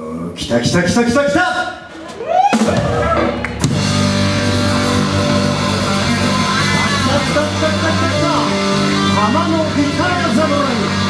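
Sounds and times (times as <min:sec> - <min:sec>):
rock band playing live: 0:02.0 - 0:11.0
bass guitar: 0:02.5 - 0:11.0
electric guitar chords: 0:02.8 - 0:11.0.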